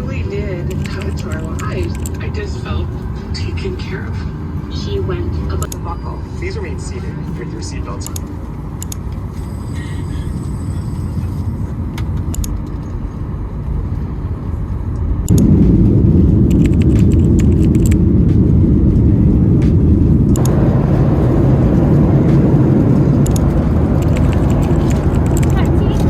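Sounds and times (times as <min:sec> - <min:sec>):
jet engines rumbling: 0:00.0 - 0:26.0
rushing air: 0:13.2 - 0:26.0.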